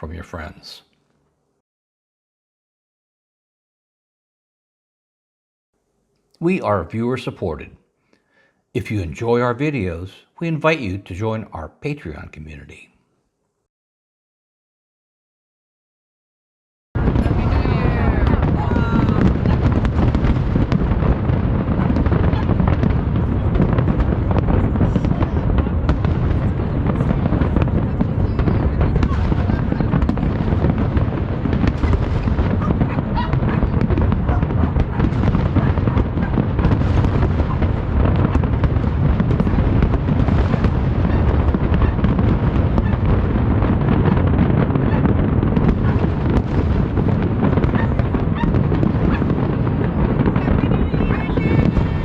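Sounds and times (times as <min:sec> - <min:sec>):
fireworks booming: 0:17.0 - 0:52.0
fireworks crackling: 0:17.0 - 0:52.0.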